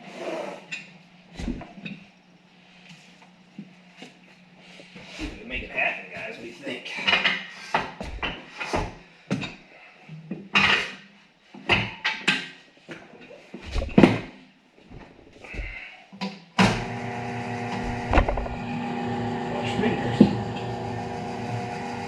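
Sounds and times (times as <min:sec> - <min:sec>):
motor running: 0:16.6 - 0:22.0.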